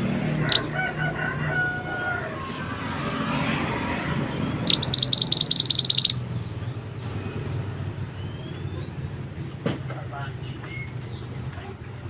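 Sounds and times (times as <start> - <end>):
faint background bird calls: 0.0 - 0.8, 4.0 - 11.8
songbird trilling: 0.4 - 0.7, 4.6 - 6.5.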